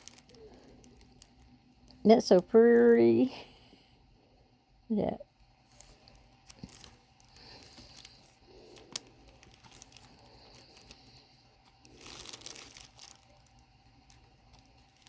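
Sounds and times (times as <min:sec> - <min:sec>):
paper rustling and crinkling: 0:00.0 - 0:01.5, 0:05.7 - 0:15.0.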